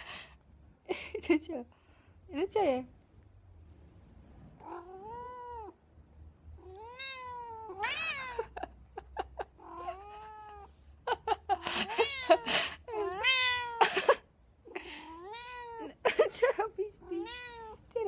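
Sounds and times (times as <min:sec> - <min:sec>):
cat yowling: 0:04.6 - 0:05.7, 0:06.6 - 0:08.6, 0:09.6 - 0:10.7, 0:11.8 - 0:14.0, 0:15.0 - 0:15.9, 0:17.1 - 0:17.8.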